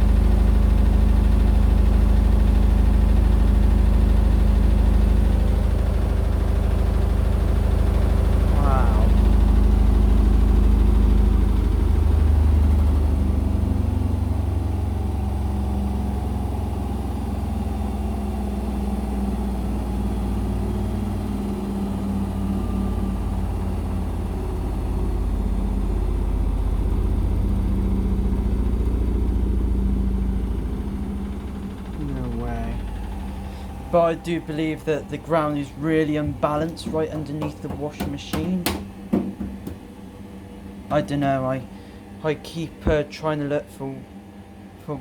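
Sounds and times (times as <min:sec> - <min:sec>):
washing machine spinning: 0:00.0 - 0:45.0
cabinet rattling against floor: 0:36.2 - 0:39.8.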